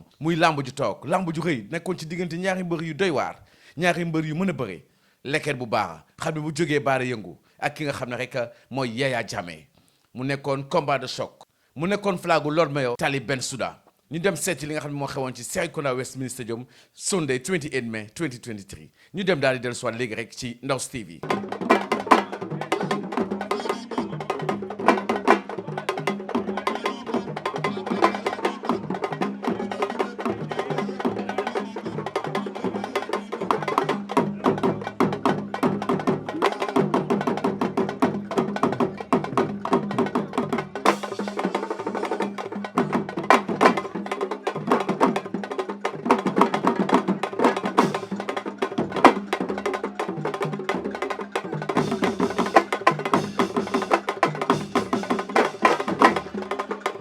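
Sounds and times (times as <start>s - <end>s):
fast woody drumming: 0.0s - 4.6s, 20.8s - 57.0s.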